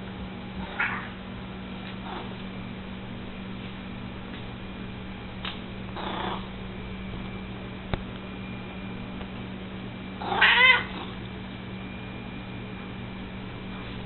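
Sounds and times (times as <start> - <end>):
cat meowing: 0.7 - 1.2, 10.2 - 11.0.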